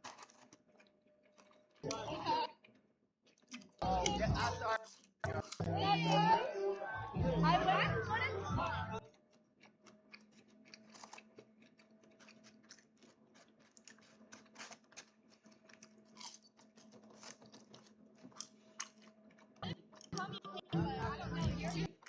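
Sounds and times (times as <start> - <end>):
faint clicks and crackles: 9.0 - 20.4.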